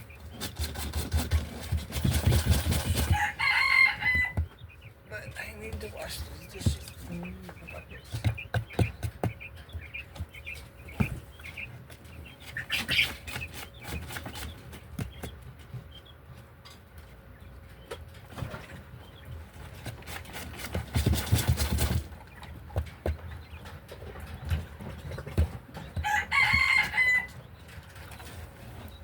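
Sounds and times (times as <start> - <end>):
pet birds chirping: 0.0 - 29.0
clatter and wings flapping: 0.4 - 3.2, 20.1 - 22.1.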